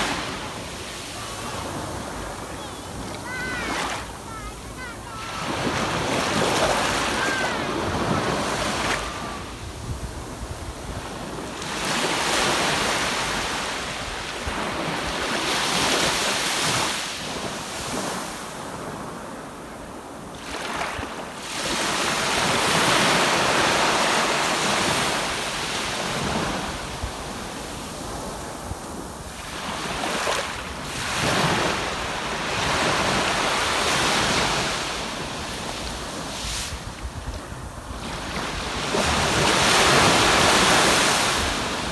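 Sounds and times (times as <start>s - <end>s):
wind buffeting microphone: 0.0s - 11.6s
surf breaking on beach: 0.0s - 17.2s, 21.8s - 41.9s.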